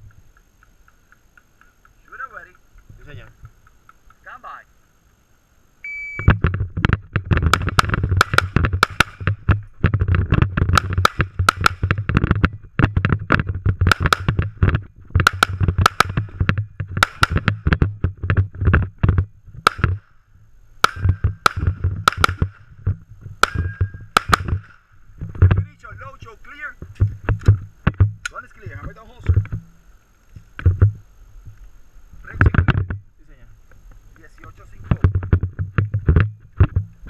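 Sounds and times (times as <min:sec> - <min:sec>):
shot timer beep: 0:05.8 - 0:06.3
pistol shots: 0:15.2 - 0:16.2, 0:17.0 - 0:17.5, 0:19.6 - 0:20.0, 0:20.8 - 0:22.6, 0:23.4 - 0:24.8.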